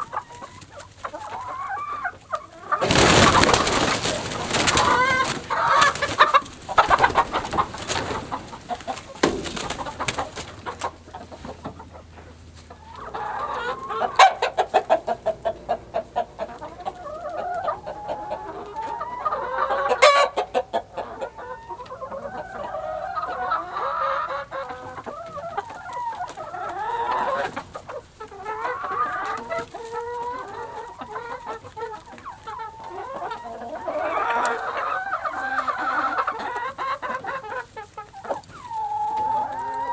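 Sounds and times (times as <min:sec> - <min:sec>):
chickens clucking and squawking: 0:00.0 - 0:39.9
knocks and clatter: 0:02.8 - 0:11.8.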